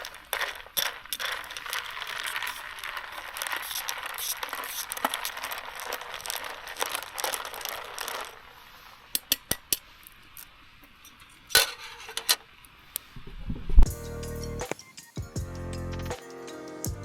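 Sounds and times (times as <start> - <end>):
rustling: 0.0 - 9.2.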